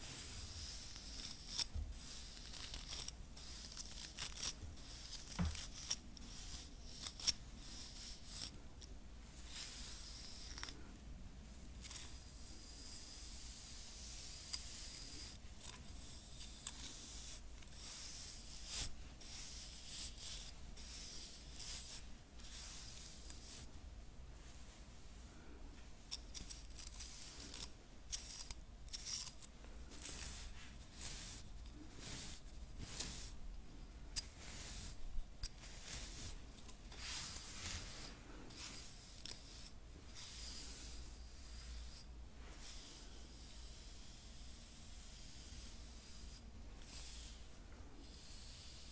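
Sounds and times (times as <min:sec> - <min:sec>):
hairbrush bristle strokes: 0:00.0 - 0:08.6, 0:09.3 - 0:10.9, 0:11.6 - 0:23.8, 0:25.9 - 0:48.9
hairbrush bristles swishing: 0:26.2 - 0:33.4, 0:34.2 - 0:43.3.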